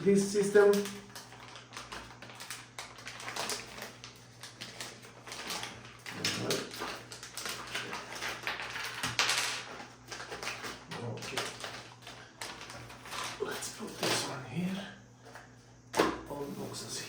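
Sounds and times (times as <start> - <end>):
cardboard and paper rustling: 0.4 - 14.4.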